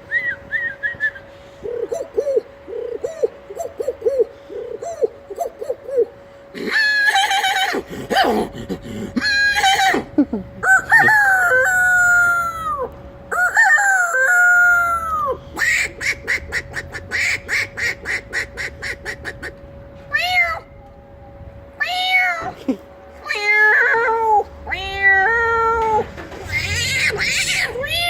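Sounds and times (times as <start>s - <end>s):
man clucking like a chicken: 1.6s - 19.6s
man imitating rooster crowing: 9.2s - 15.4s.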